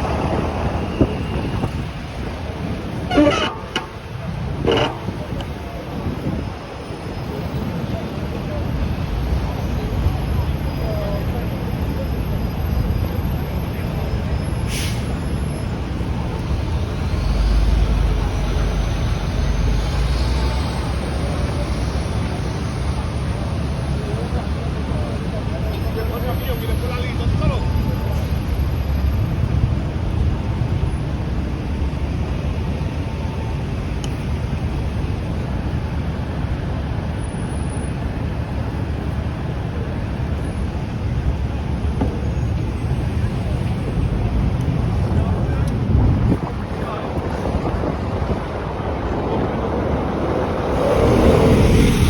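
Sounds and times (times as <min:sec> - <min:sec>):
traffic rumble: 0:00.0 - 0:52.0
wind buffeting microphone: 0:44.1 - 0:52.0.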